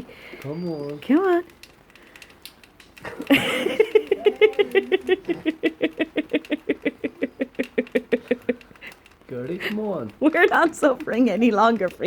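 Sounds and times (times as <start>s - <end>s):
dog whining and whimpering: 0.3s - 1.4s.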